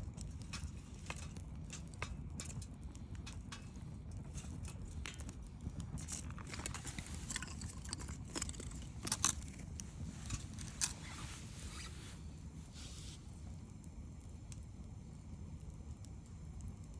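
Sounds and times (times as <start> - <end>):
campfire crackling: 0.0 - 16.9.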